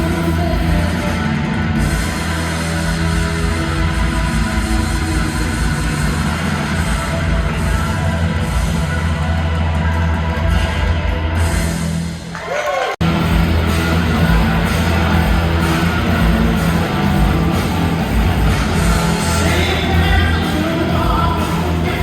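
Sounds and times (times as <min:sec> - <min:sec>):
live rock band playing: 0:00.0 - 0:12.2, 0:13.0 - 0:22.0
drums: 0:00.0 - 0:22.0
electric guitar: 0:13.0 - 0:22.0.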